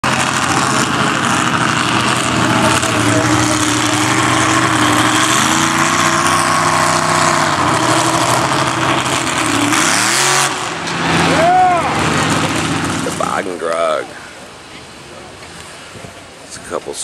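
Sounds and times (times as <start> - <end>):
vehicle engine running at low revs: 0.0 - 13.6.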